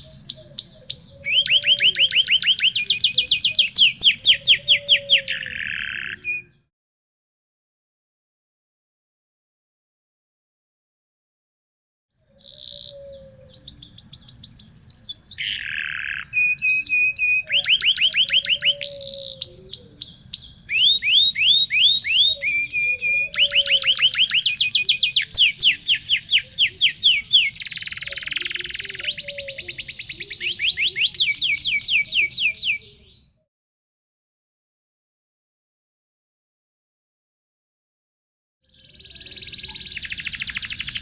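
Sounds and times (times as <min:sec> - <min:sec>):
canary singing trills: 0:00.0 - 0:06.7, 0:12.2 - 0:33.4, 0:38.7 - 0:41.0.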